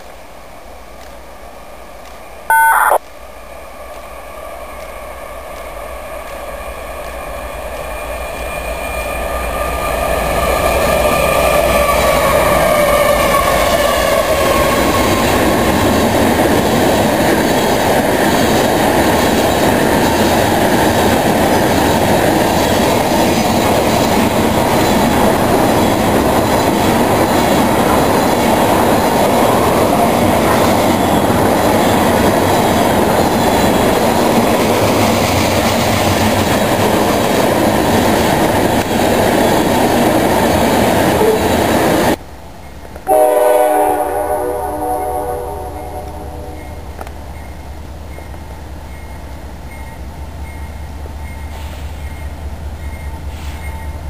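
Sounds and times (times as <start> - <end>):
train wheels on rail: 0.0 - 54.0
locomotive passing: 7.3 - 42.2.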